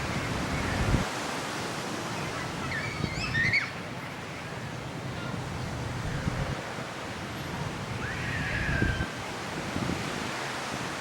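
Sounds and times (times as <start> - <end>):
wind thumping on microphone: 0.0 - 1.2, 7.9 - 11.0
ocean surf washing on beach: 0.0 - 11.0.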